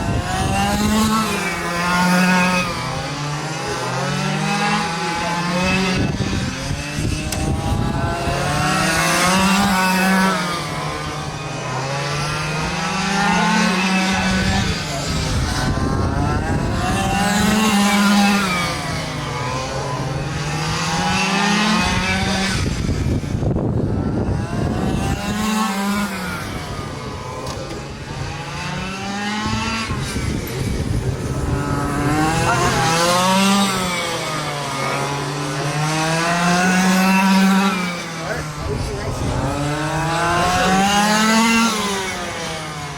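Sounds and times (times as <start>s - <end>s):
rc truck engines revving: 0.0s - 42.9s.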